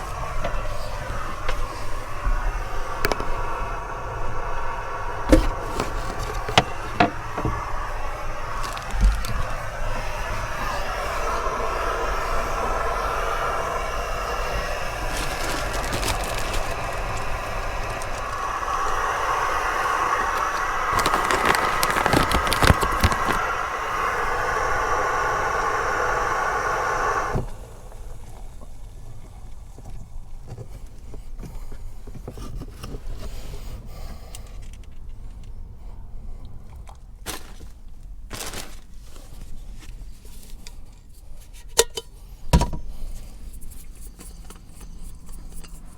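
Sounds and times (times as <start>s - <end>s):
strong wind blowing: 0.0s - 28.1s.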